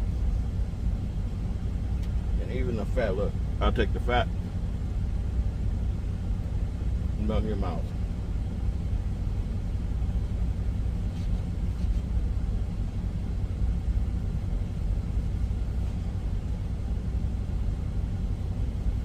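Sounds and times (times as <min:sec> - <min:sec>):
constant hum: 0:00.0 - 0:19.0
truck engine idling: 0:00.0 - 0:19.0.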